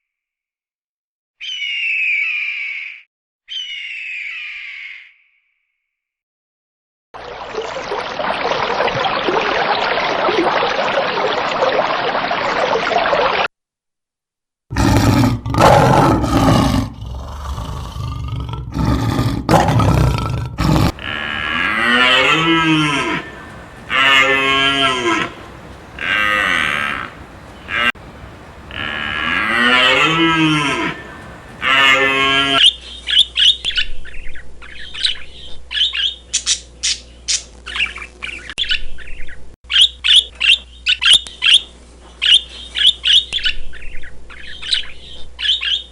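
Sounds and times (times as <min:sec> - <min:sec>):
loud rough unpitched sounds: 0:19.7 - 0:32.6
cattle mooing: 0:20.7 - 0:32.6
steady dense noise: 0:20.9 - 0:32.6.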